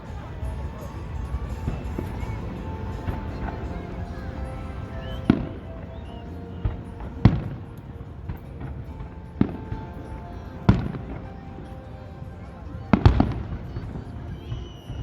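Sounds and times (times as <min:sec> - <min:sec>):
fireworks exploding: 0:00.0 - 0:15.0
music: 0:00.0 - 0:15.0.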